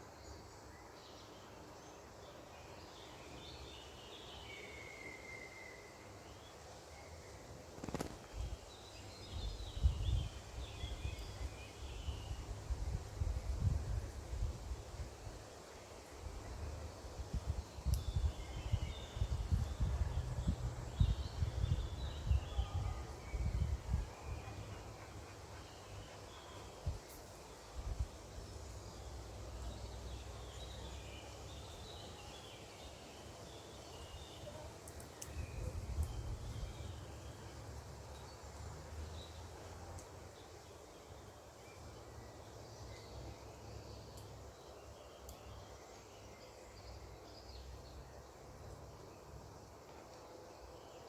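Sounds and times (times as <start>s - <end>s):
songbirds chirping: 0.0s - 51.0s
small birds chirping: 1.2s - 12.5s
wind buffeting microphone: 17.3s - 24.4s.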